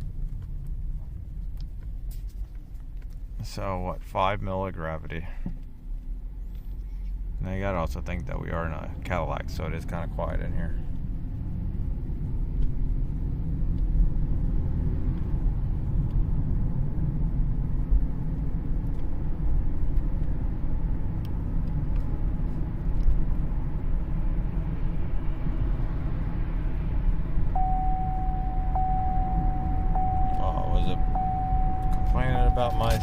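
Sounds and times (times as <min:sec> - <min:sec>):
car road and drivetrain rumble: 0:00.0 - 0:33.0
high electronic tone: 0:27.6 - 0:33.0.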